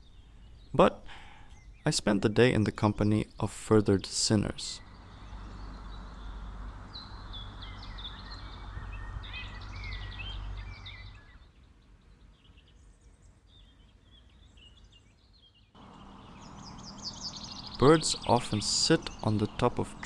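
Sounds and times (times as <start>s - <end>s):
songbirds chirping and trilling: 0.0s - 20.0s
low background rumble: 4.8s - 11.0s, 15.8s - 20.0s.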